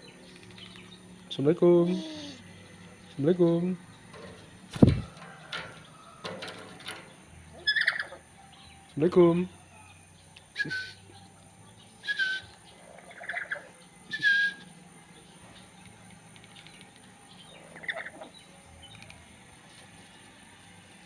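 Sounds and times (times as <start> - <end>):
parrot squawking: 7.6 - 8.2.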